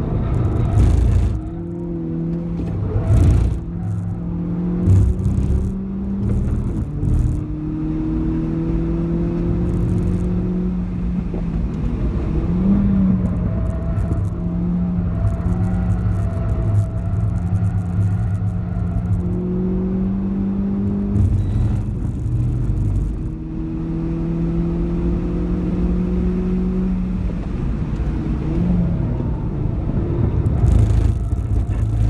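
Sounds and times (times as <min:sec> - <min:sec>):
car engine accelerating: 0:00.0 - 0:32.0
tyre and road rumble: 0:00.0 - 0:32.0.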